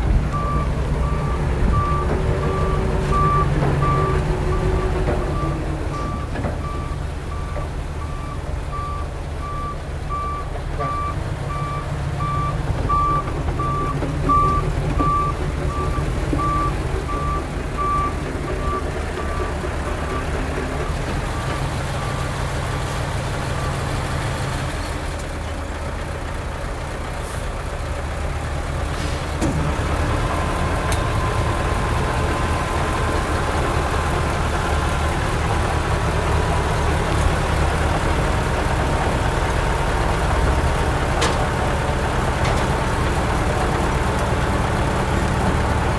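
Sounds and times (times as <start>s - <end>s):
diesel truck engine running: 0.0s - 45.9s
reversing alarm beeping: 0.3s - 20.3s.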